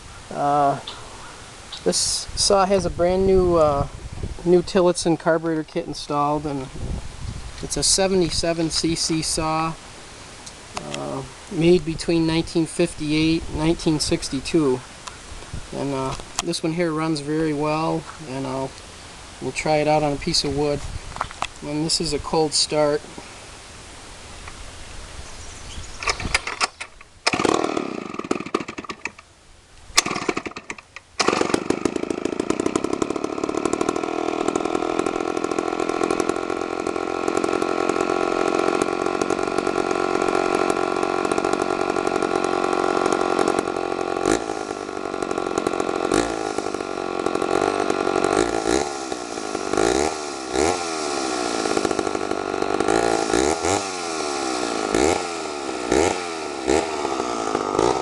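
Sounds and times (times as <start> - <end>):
chainsaw starting and revving: 7.6 - 9.8, 26.2 - 29.3, 29.9 - 58.0.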